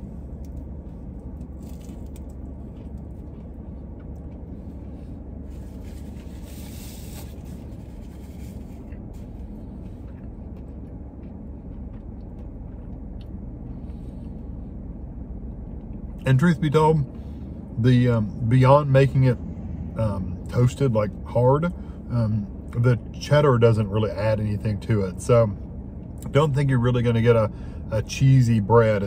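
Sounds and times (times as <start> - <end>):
man chewing: 0.0 - 14.6
car engine idling: 0.0 - 29.0.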